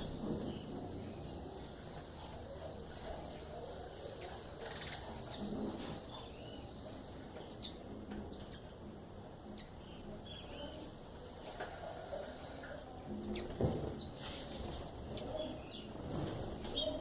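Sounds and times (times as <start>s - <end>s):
birds chirping: 0.0s - 17.0s
short rustle: 14.0s - 14.9s.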